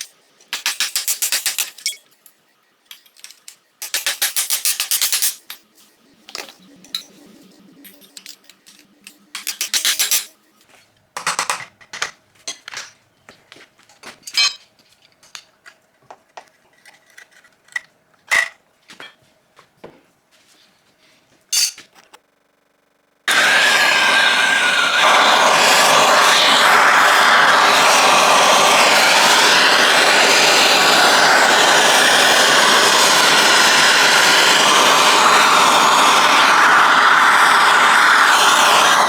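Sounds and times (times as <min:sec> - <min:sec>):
metal tools clinking: 0:14.2 - 0:14.7.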